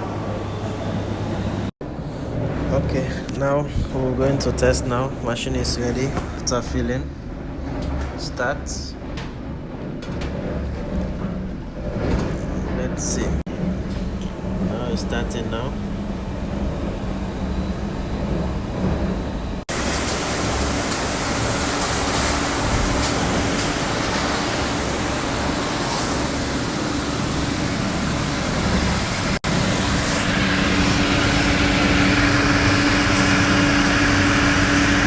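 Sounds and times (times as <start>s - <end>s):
motor hum: 13.5s - 35.0s
dishwasher water spray: 19.7s - 35.0s.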